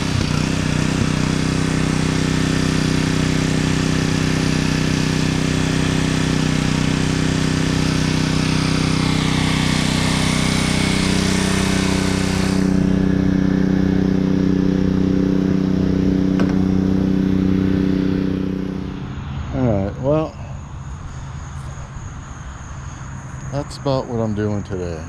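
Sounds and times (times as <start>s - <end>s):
pressure washer engine running: 0.0s - 25.0s
water spray hissing: 7.4s - 13.0s.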